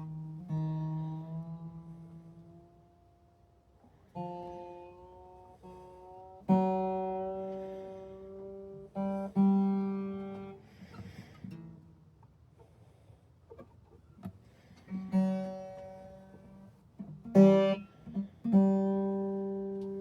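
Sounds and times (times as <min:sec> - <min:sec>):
acoustic guitar notes plucked: 0:00.0 - 0:03.4, 0:04.1 - 0:12.0, 0:14.9 - 0:20.0
finger and string noises: 0:13.5 - 0:20.0.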